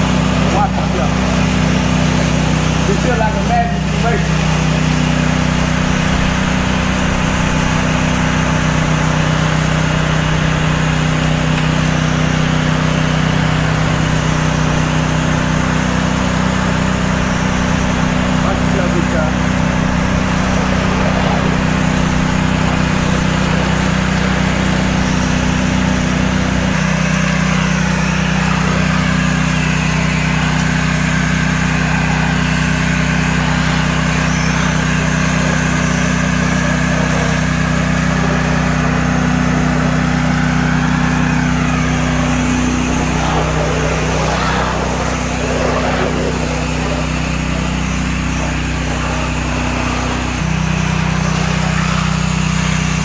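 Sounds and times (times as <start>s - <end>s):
gas engine running: 0.0s - 53.0s
hiss of water spray: 40.5s - 53.0s.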